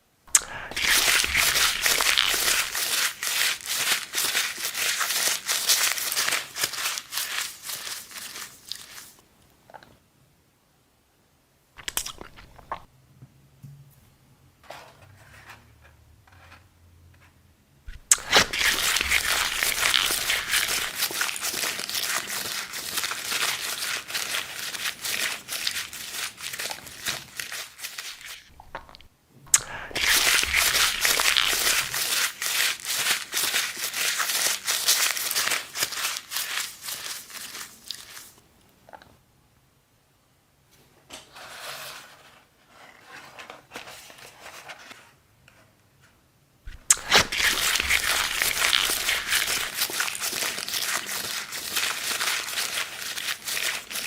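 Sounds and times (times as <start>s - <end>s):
crinkling and crumpling: 0.3s - 9.9s, 11.8s - 12.9s, 17.9s - 38.4s, 46.7s - 54.0s.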